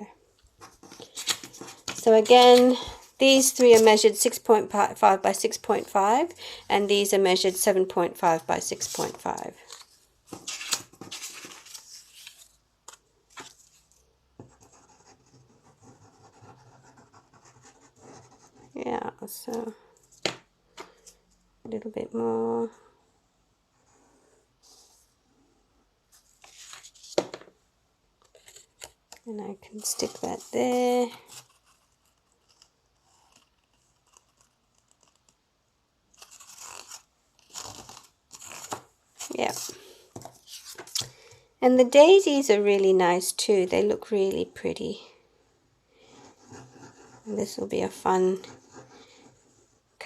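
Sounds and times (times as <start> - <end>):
paper rustling and scraping: 0.6 - 4.1, 8.2 - 14.1, 26.1 - 27.5, 36.2 - 41.1
paper scratching and rubbing: 8.2 - 18.8, 29.7 - 35.4, 36.2 - 41.0, 46.1 - 50.0.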